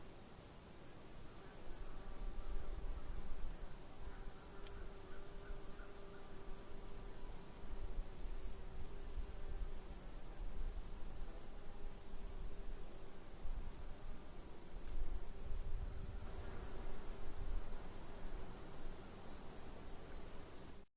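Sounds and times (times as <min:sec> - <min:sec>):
crickets chirping: 0:00.0 - 0:20.8.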